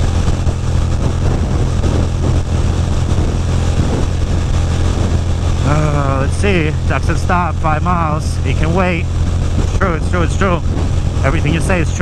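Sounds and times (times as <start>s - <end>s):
motorcycle engine cruising: 0.0s - 12.0s
wind noise: 0.0s - 12.0s.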